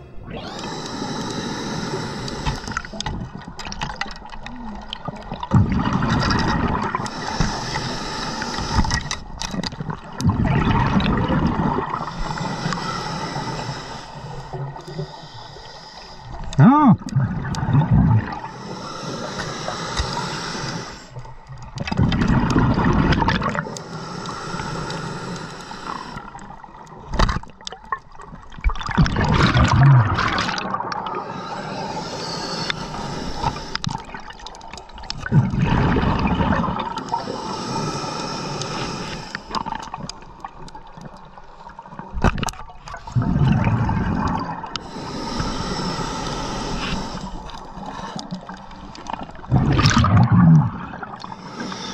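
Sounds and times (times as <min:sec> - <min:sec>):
regulator hissing inhale: 0:00.3 - 0:03.1, 0:07.0 - 0:09.4, 0:11.9 - 0:16.5, 0:18.3 - 0:21.3, 0:23.6 - 0:26.6, 0:31.1 - 0:34.3, 0:36.9 - 0:40.3, 0:44.7 - 0:49.2, 0:51.2 - 0:51.9
exhaust bubbles rumbling: 0:04.6 - 0:07.6, 0:09.7 - 0:12.1, 0:16.6 - 0:18.6, 0:21.8 - 0:23.7, 0:28.5 - 0:31.3, 0:35.2 - 0:37.0, 0:43.0 - 0:44.9, 0:49.2 - 0:51.4.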